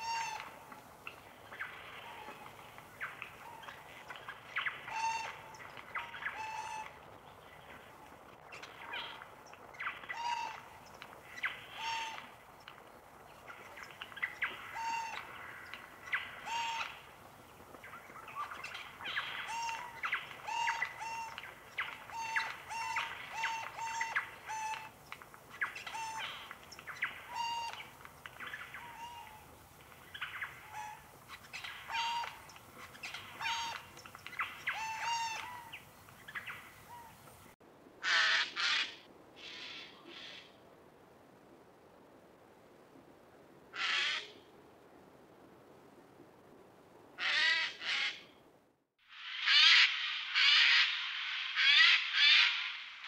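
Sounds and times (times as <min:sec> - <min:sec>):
birds calling: 0:00.0 - 0:40.5.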